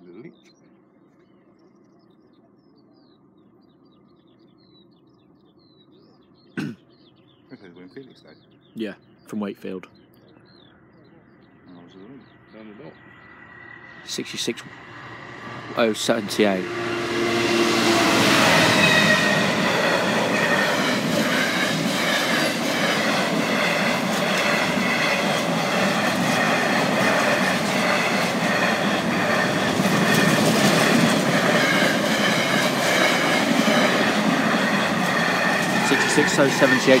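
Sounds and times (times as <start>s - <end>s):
diesel locomotive passing: 10.4s - 37.0s
wagon wheels clattering on rails: 18.7s - 37.0s.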